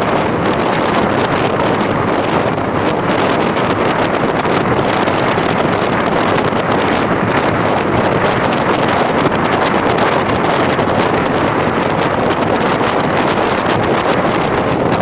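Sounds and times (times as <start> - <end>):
vehicle running noise: 0.0 - 15.0
wind buffeting microphone: 0.0 - 15.0.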